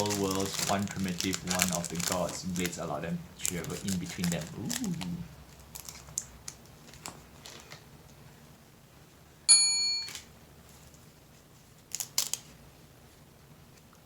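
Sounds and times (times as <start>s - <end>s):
bell-like ding: 9.5s - 10.2s.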